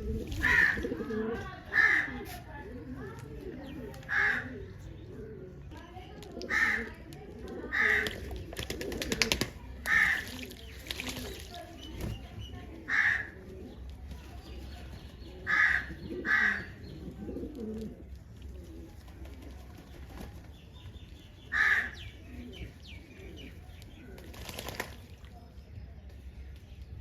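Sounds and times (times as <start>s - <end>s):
pigeons cooing: 0.0s - 20.6s, 21.4s - 25.0s
small birds chirping: 0.3s - 27.0s
crows cawing: 1.7s - 2.2s, 4.1s - 4.6s, 6.5s - 6.9s, 12.9s - 13.4s, 15.5s - 16.8s, 21.5s - 22.0s.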